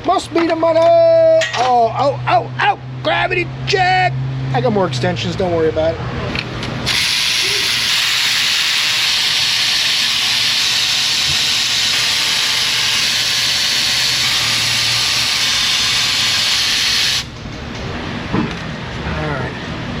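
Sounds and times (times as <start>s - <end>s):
aerosol spray hiss: 7.0s - 11.6s.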